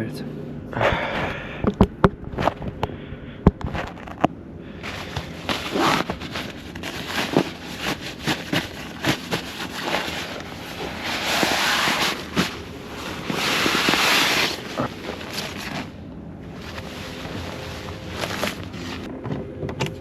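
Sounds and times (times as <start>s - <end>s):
sleeping bag rustling: 4.8s - 19.1s.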